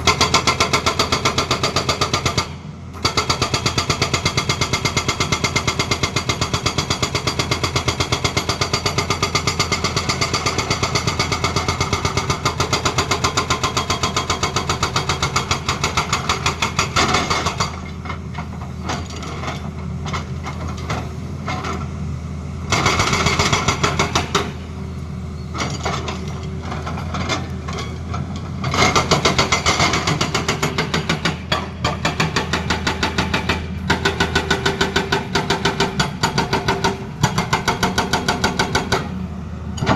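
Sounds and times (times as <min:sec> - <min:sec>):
excavator diesel engine running: 0:00.0 - 0:39.9
hydraulic breaker hammering: 0:22.7 - 0:24.7, 0:25.4 - 0:39.2.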